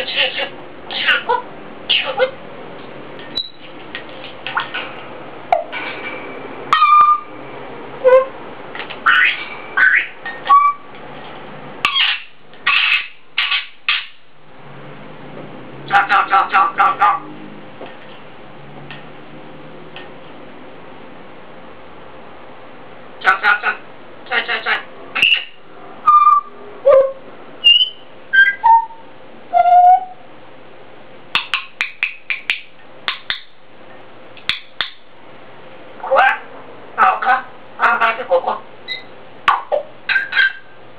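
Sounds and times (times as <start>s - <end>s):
parrot squawking: 0.0s - 2.4s, 3.3s - 3.6s, 5.5s - 5.8s, 6.7s - 7.3s, 8.0s - 10.9s, 11.8s - 14.2s, 15.9s - 17.2s, 23.2s - 30.2s, 31.3s - 33.6s, 34.4s - 35.1s, 36.0s - 40.8s
parrot chirps and clicks: 3.2s - 4.8s, 11.8s - 14.2s, 27.6s - 28.8s, 31.3s - 33.6s, 34.3s - 35.1s, 38.9s - 40.6s
parrot whistling: 3.3s - 3.6s, 6.7s - 7.3s, 8.0s - 8.4s, 9.1s - 10.9s, 11.8s - 14.2s, 25.2s - 30.2s, 31.4s - 33.5s, 38.9s - 40.8s.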